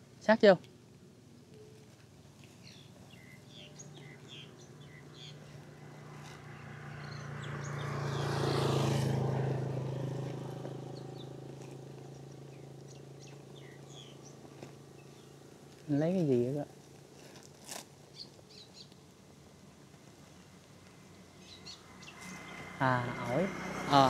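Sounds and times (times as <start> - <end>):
birds chirping: 1.5 - 8.8, 9.6 - 16.6, 18.0 - 19.0, 21.3 - 24.0
vehicle passing: 2.6 - 17.2, 18.2 - 24.0.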